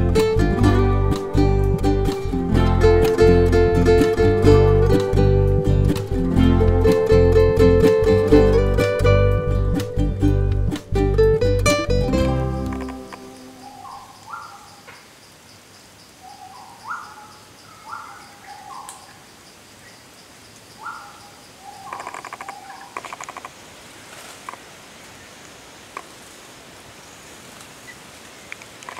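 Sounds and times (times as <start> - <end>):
high insect ticking: 12.3 - 23.6.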